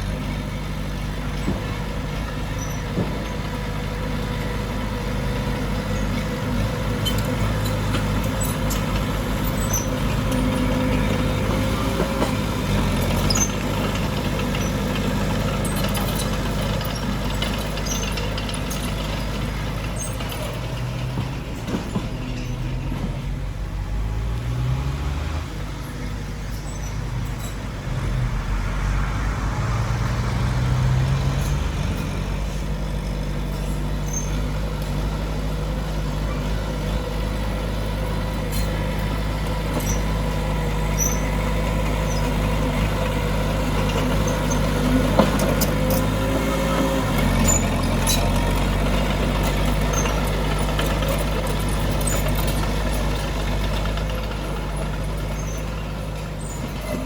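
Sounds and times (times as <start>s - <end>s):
heavy diesel engine running: 0.0s - 57.0s
metal clicks and squeaks: 7.0s - 23.1s, 25.8s - 28.1s, 31.2s - 35.0s, 38.5s - 40.3s, 40.9s - 41.4s, 43.8s - 57.0s.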